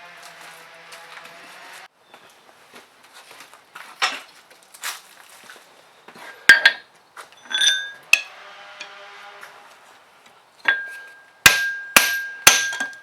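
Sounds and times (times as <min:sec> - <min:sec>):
metal tools clinking: 0:06.5 - 0:06.8, 0:07.4 - 0:09.0, 0:10.6 - 0:13.0
ringing metallic clang: 0:07.4 - 0:09.0, 0:10.6 - 0:13.0.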